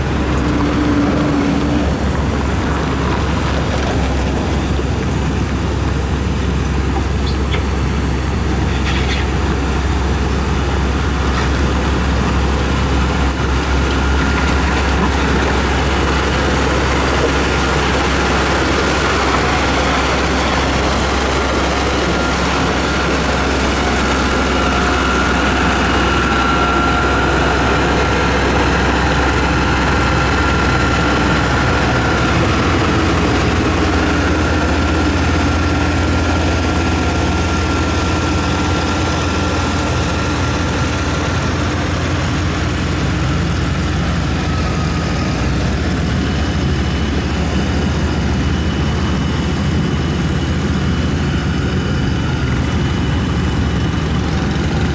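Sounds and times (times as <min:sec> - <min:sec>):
diesel engine droning: 0:00.0 - 0:54.9.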